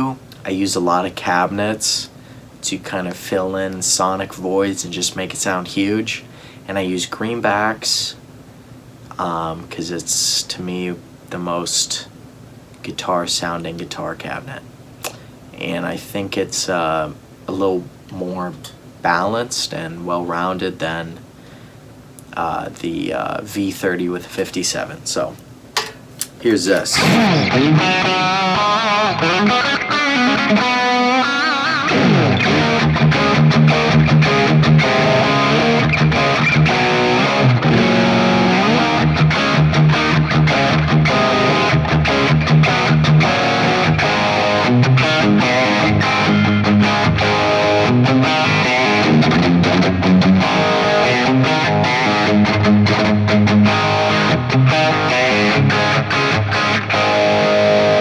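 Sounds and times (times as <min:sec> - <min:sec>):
distorted electric guitar: 0:26.9 - 0:58.0.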